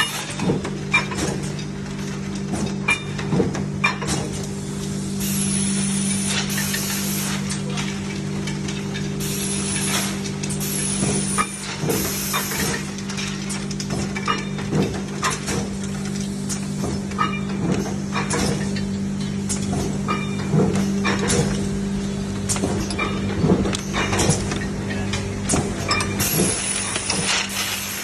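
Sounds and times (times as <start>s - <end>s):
machine hum: 0.3s - 28.0s.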